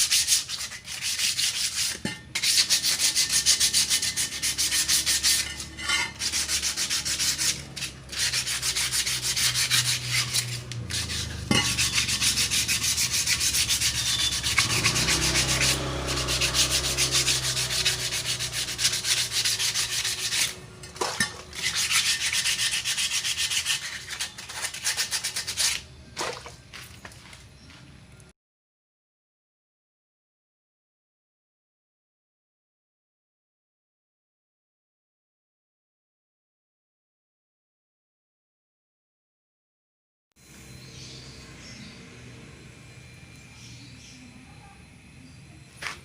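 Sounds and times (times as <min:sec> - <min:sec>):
abrasive rubbing on wheel rim: 0:00.0 - 0:27.4.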